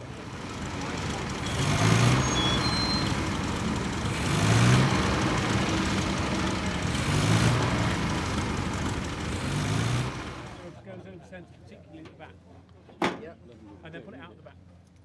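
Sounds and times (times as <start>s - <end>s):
racing car engine running: 0.0s - 10.8s.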